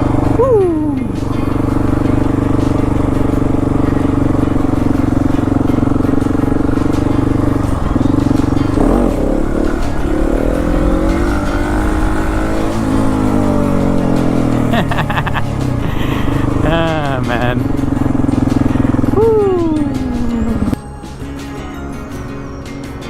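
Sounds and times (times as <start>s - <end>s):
motorcycle engine running: 0.0s - 21.5s.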